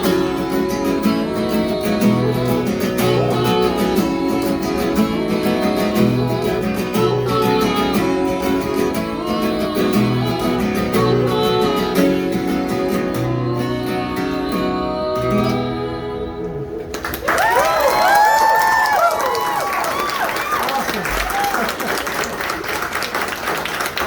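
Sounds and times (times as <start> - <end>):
acoustic guitar strumming: 0.0 - 17.2.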